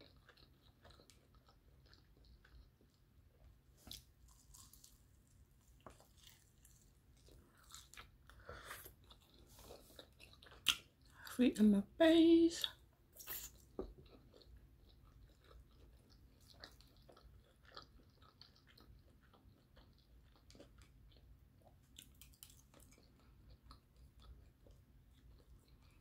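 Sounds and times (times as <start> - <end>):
crunchy chewing: 0.0 - 11.2, 12.7 - 26.0
wet mouth clicks: 13.2 - 13.7.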